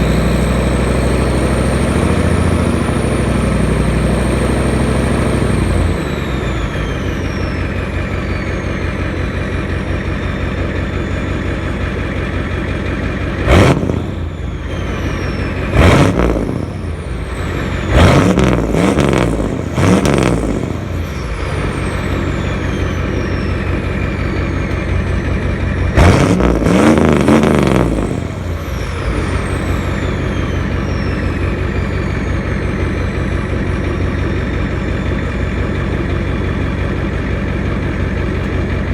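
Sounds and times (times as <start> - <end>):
diesel engine idling and revving: 0.0 - 38.9
turbo whistle: 5.6 - 11.7, 13.5 - 35.9.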